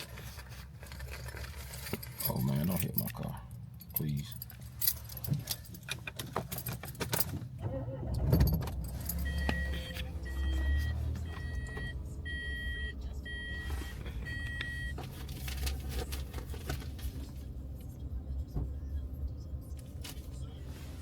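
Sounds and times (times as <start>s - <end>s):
low vehicle rumble: 7.5s - 21.0s
car warning chime beeping: 8.8s - 15.1s.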